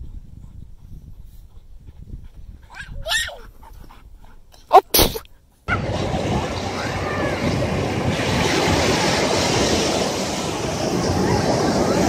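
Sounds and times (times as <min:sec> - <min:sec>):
wind blowing over microphone: 0:00.0 - 0:05.1, 0:05.7 - 0:12.0
surf washing on shore: 0:05.7 - 0:12.0.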